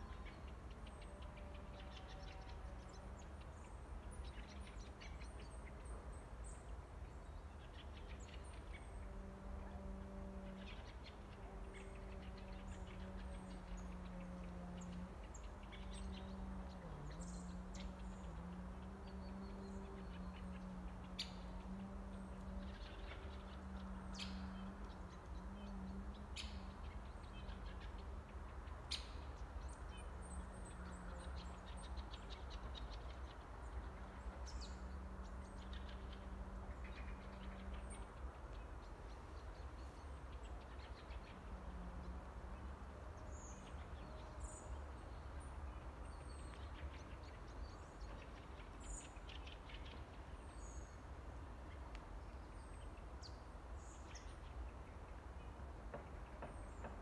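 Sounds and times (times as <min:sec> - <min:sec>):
faint low rumble: 0:00.0 - 0:57.0
small birds chirping: 0:10.4 - 0:55.4.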